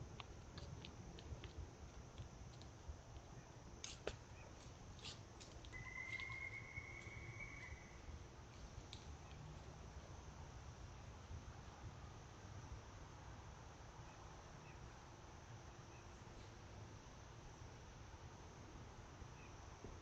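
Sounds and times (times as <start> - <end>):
high whistle: 5.8 - 7.9.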